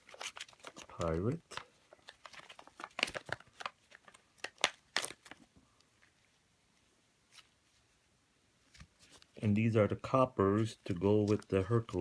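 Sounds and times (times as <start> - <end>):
plastic packaging crinkling: 0.0 - 5.5.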